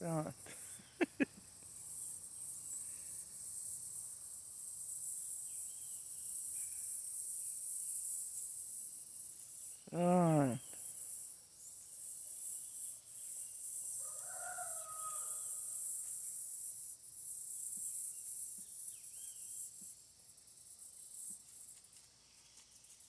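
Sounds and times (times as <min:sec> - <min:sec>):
high-pitched hiss: 0:00.0 - 0:23.0
rooster crowing: 0:14.0 - 0:15.8.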